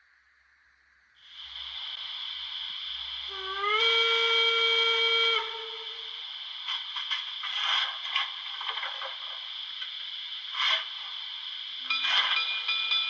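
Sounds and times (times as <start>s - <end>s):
steam hiss: 1.2s - 13.0s
steam whistle: 3.2s - 6.3s.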